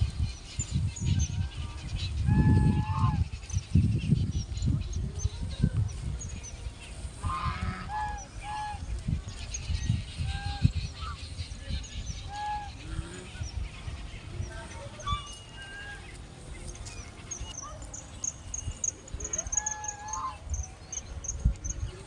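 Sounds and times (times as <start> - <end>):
geese honking: 7.2 - 8.9, 19.3 - 20.5.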